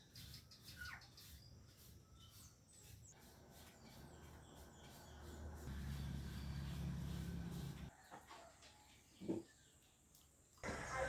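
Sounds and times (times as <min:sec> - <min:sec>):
faint bird chirps: 0:00.0 - 0:07.7.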